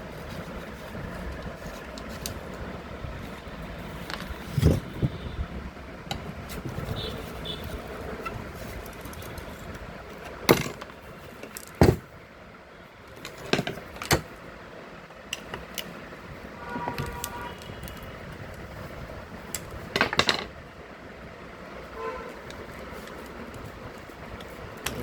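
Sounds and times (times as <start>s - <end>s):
background noise: 0.0s - 25.0s
metal tools clicking and knocking: 19.5s - 20.5s.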